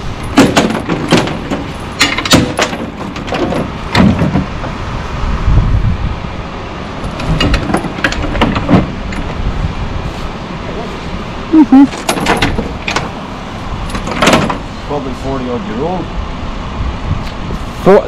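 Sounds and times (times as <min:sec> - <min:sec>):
steady low rumble: 0:00.0 - 0:18.0
metal clanks and knocks: 0:00.2 - 0:04.8, 0:07.0 - 0:09.4, 0:11.9 - 0:13.2, 0:13.8 - 0:14.6.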